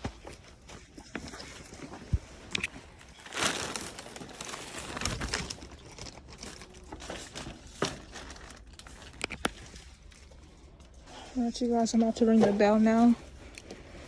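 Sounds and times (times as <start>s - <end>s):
paper bag crinkling: 2.5s - 11.1s.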